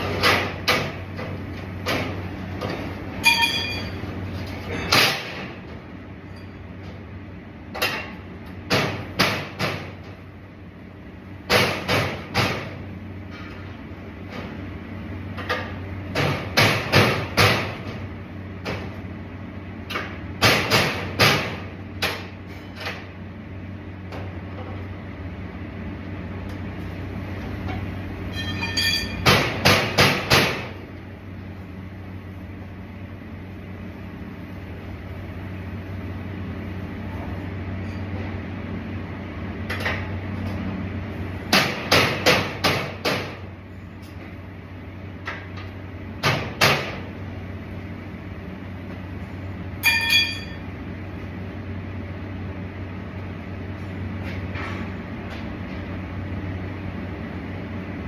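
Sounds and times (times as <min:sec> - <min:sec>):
steady low hum: 0:00.0 - 0:58.0
hammer striking metal: 0:03.2 - 0:04.0, 0:49.8 - 0:50.6.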